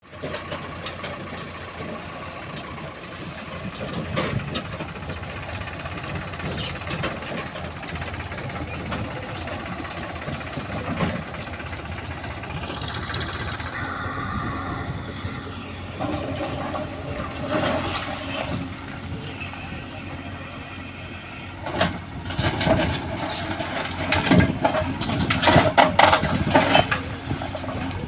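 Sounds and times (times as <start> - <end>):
diesel engine of heavy machinery: 0.0 - 28.0
rising machine whine: 12.2 - 17.4.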